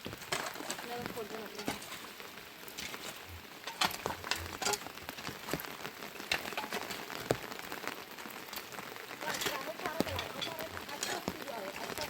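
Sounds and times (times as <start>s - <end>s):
rain falling: 0.0s - 12.0s
drops ticking on a surface: 3.7s - 12.0s.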